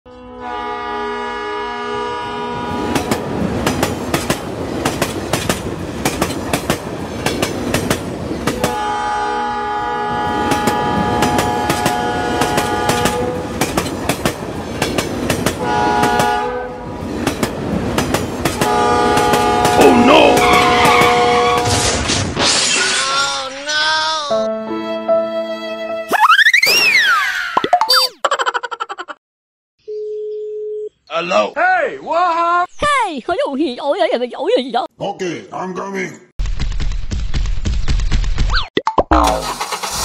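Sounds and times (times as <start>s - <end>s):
train horn chord: 0.1s - 3.1s, 8.6s - 13.6s, 15.6s - 17.0s, 18.6s - 21.8s
train wheels clacking over rails: 2.9s - 8.8s, 10.5s - 16.4s, 17.0s - 21.3s.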